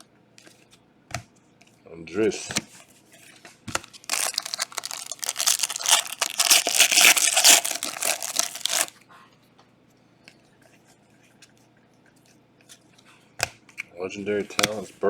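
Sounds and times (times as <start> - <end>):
plastic wrapper crinkling: 3.7 - 8.9.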